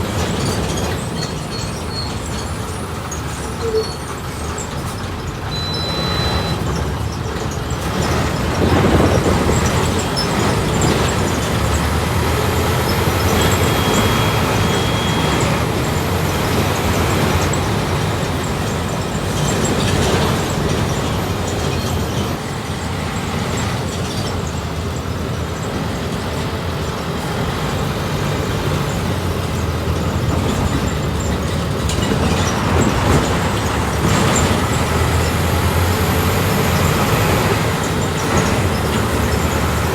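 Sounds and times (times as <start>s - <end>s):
bus diesel engine running: 0.0s - 39.9s
road noise: 0.0s - 39.9s
brief high beeps: 5.5s - 6.6s, 13.6s - 15.4s.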